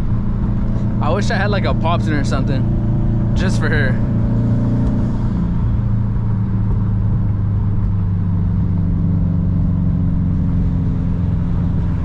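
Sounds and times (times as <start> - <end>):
car engine droning: 0.0 - 12.0
road noise: 0.0 - 12.0.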